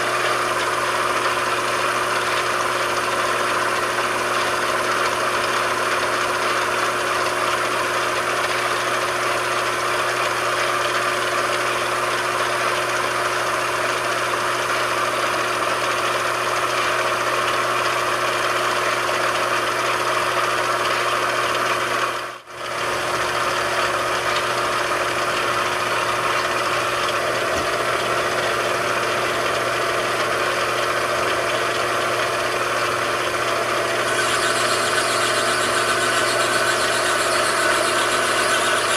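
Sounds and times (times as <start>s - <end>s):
machine tool humming: 22.0s - 38.9s.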